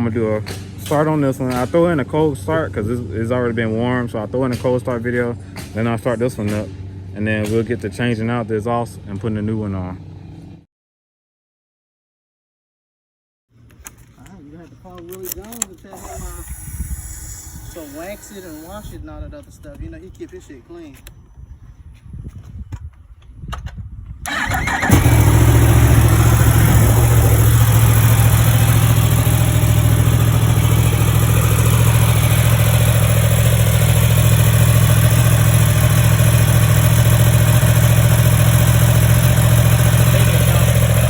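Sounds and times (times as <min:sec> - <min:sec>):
motorcycle engine starting and idling: 0:15.1 - 0:19.0, 0:24.2 - 0:41.0.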